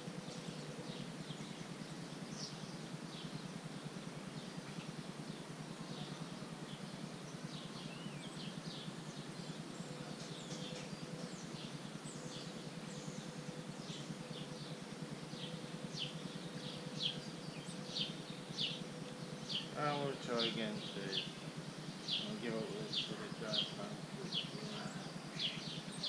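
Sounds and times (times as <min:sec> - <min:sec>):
high downward-sliding bird chirps: 0:07.4 - 0:26.0.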